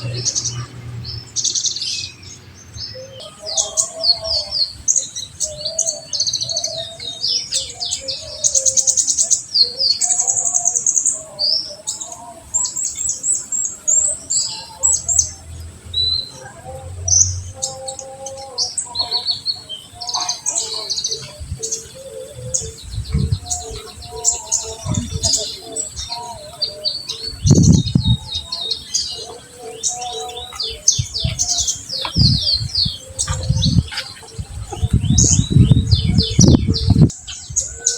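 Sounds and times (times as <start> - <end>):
sunbird song chirps and trills: 0.0 - 37.9.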